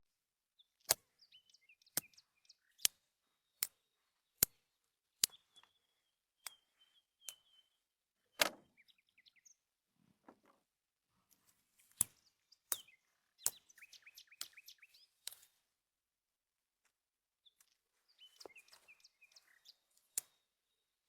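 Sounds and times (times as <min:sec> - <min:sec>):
small birds chirping: 0:00.6 - 0:15.7, 0:17.3 - 0:21.0.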